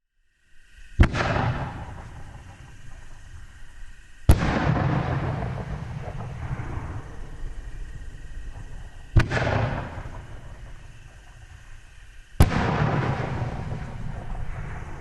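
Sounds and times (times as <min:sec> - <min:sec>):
firework shell booms: 0:01.0 - 0:03.7, 0:04.3 - 0:15.0.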